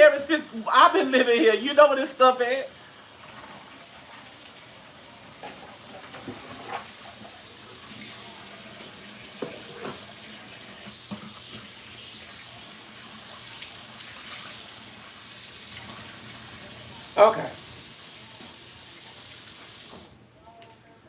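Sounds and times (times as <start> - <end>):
tap running into sink: 7.9 - 11.8, 19.8 - 20.1
dishes clinking and knocking: 9.3 - 10.1.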